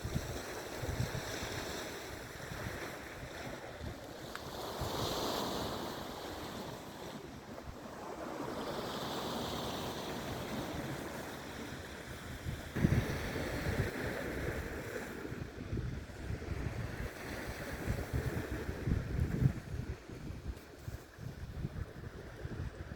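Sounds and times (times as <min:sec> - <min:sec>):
wind rumbling on microphone: 0:00.0 - 0:06.6, 0:12.0 - 0:22.9
sea waves washing in: 0:00.0 - 0:22.9.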